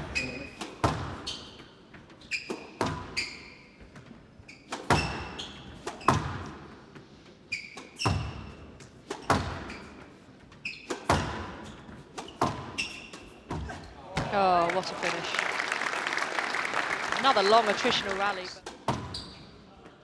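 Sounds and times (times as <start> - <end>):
squash ball hitting rackets and walls: 0.2 - 1.7, 2.3 - 14.4, 18.7 - 19.4
shoes squeaking on wooden floor: 1.2 - 6.3, 7.5 - 8.6, 9.3 - 13.9, 18.9 - 19.7.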